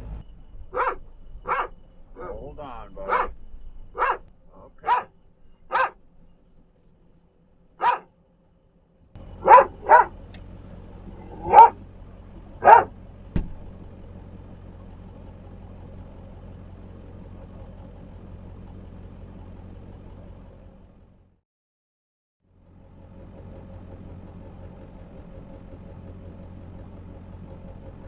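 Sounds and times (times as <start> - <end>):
engine running: 0.0 - 21.4, 22.5 - 28.0
dog barking: 0.7 - 6.0, 7.8 - 8.1, 9.3 - 10.4, 11.1 - 13.0.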